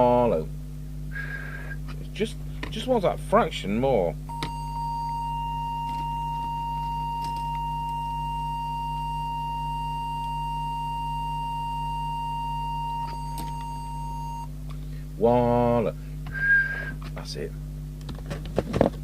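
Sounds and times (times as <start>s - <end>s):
low steady hum: 0.0s - 19.0s
steady pure test tone: 4.3s - 14.5s.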